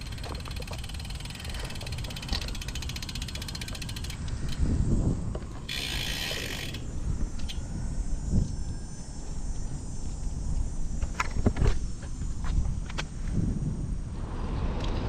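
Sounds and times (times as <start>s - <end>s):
bicycle freehub ticking: 0.0s - 8.3s
wind and road rumble: 0.0s - 15.0s.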